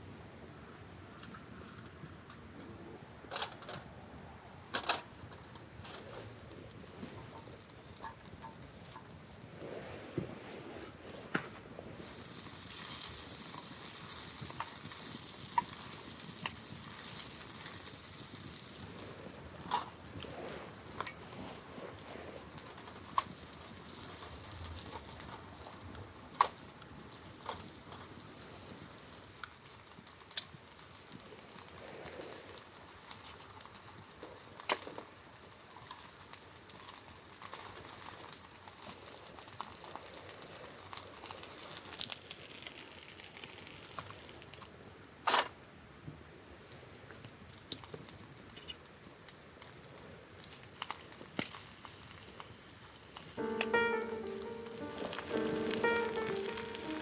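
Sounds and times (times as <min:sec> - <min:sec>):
wood fire pops and crackles: 0:04.6 - 0:09.5, 0:11.3 - 0:21.3, 0:21.9 - 0:40.3
food sizzling: 0:53.4 - 0:57.0.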